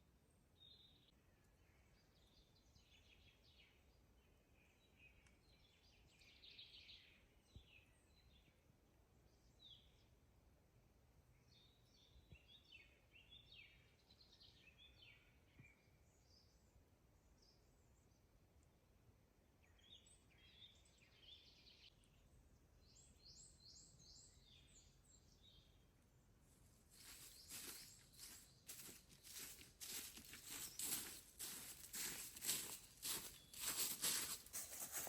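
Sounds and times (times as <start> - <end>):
faint birds chirping: 11.2 - 35.0
dry rustling and crackling: 27.0 - 35.0.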